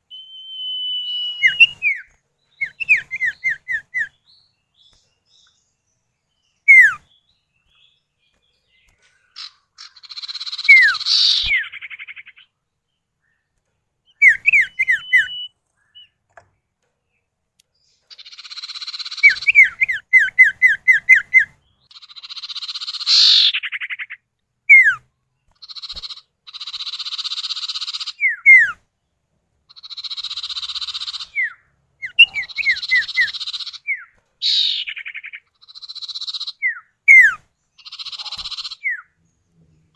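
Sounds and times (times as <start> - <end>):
bird whistled notes: 0.1 - 4.2, 6.6 - 7.1, 9.4 - 12.1, 14.1 - 16.1, 26.6 - 28.8, 36.1 - 39.1.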